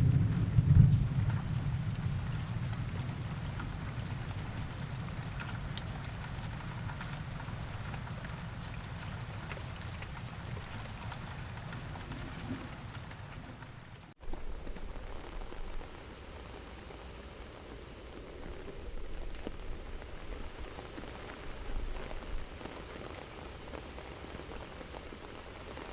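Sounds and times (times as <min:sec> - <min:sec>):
low thunder rumble: 0:00.0 - 0:16.0
rain falling: 0:00.0 - 0:25.9
raindrops ticking: 0:00.0 - 0:25.9.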